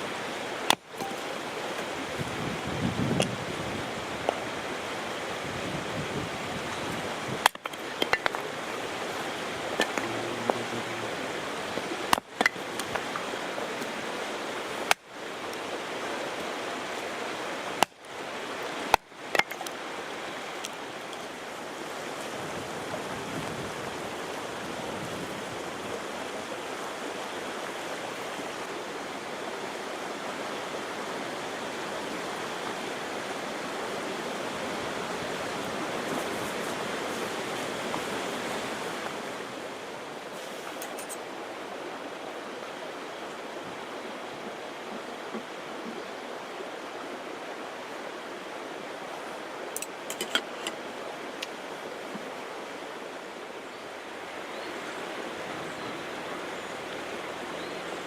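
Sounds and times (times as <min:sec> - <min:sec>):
water rushing at shore: 0:00.0 - 0:58.0.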